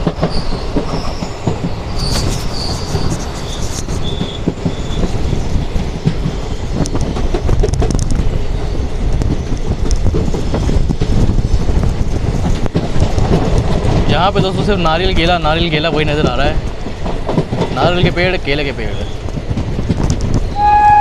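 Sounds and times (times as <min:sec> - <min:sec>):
wheels clacking over rail joints: 0:00.0 - 0:20.6
train rumbling on track: 0:00.0 - 0:21.0
short high wheel squeals: 0:02.0 - 0:05.1, 0:20.6 - 0:21.0.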